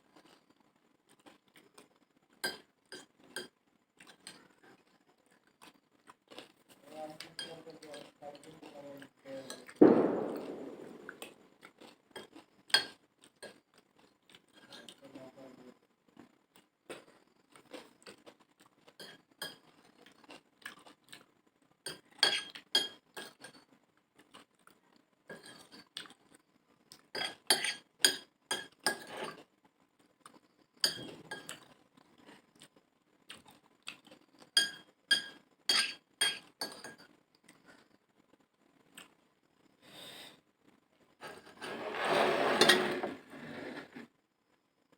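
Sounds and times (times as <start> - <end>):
spoon clinking on a plate: 12.2 - 13.6, 19.0 - 19.7, 21.9 - 23.6, 25.3 - 25.8, 27.2 - 29.4, 30.8 - 31.6, 34.6 - 37.1.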